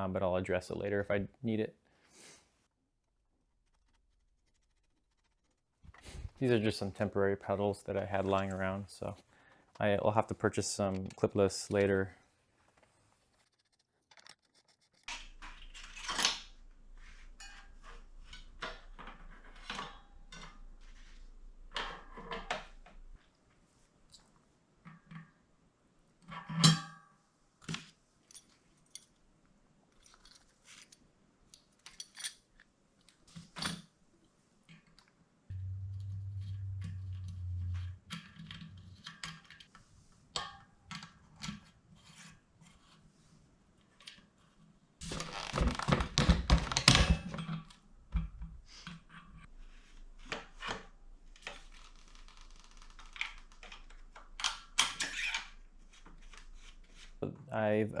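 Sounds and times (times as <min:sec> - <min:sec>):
tools and bicycle parts clicking: 0:31.6 - 0:32.6
short low hum: 0:35.5 - 0:38.8.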